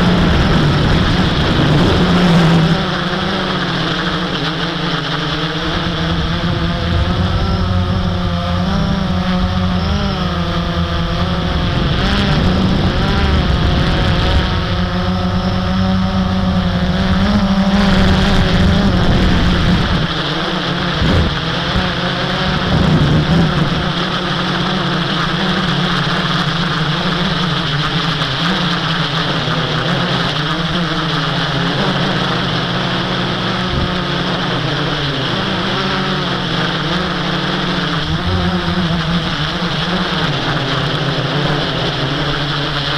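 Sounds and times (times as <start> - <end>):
quadcopter propellers buzzing: 0.0 - 42.9
heavy low rumble: 5.4 - 17.0.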